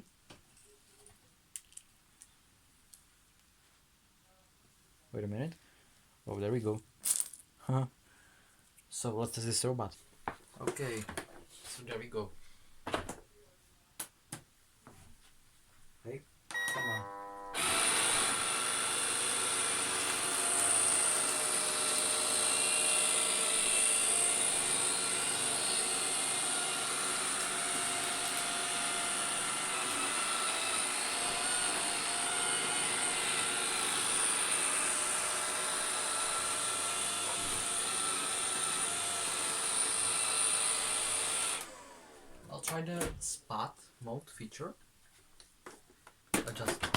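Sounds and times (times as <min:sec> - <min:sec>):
robot vacuum running: 0:17.6 - 0:42.3.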